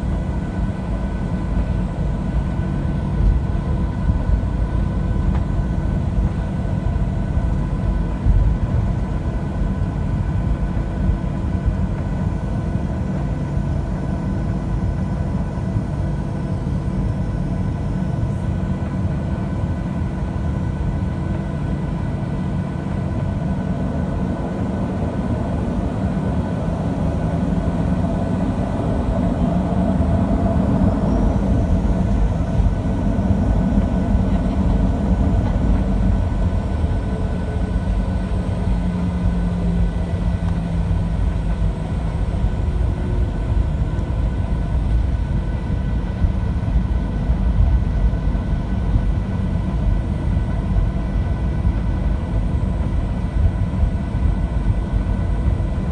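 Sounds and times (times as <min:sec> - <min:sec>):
jet engine drone: 0:00.0 - 0:55.9
airflow rumble: 0:23.0 - 0:55.9.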